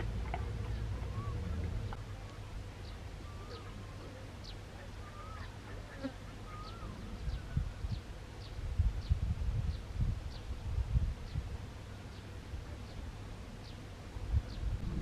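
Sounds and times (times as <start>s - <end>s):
lower wavering calls: 0.7s - 7.7s.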